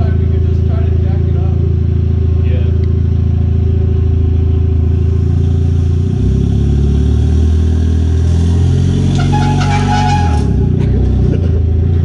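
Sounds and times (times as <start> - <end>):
car engine idling: 0.0 - 6.2, 9.1 - 12.0.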